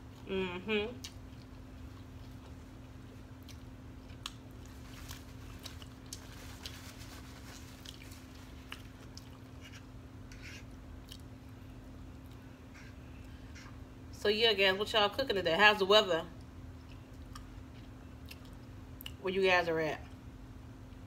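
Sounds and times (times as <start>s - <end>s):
faint steady hum: 0.0s - 21.0s
person chewing food: 1.0s - 13.8s, 16.4s - 19.2s.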